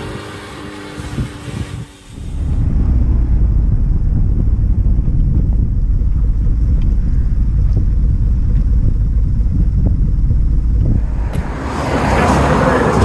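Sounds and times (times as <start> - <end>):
car low rumble: 0.0 - 13.0
wind buffeting microphone: 0.0 - 13.0.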